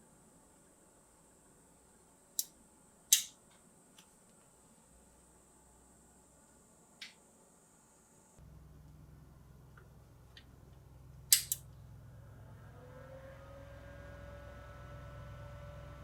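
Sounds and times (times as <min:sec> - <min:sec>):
computer fan hum: 0:00.3 - 0:16.0
sharp click: 0:02.4 - 0:03.4, 0:11.3 - 0:11.6
drive spinning up whine: 0:12.1 - 0:16.0.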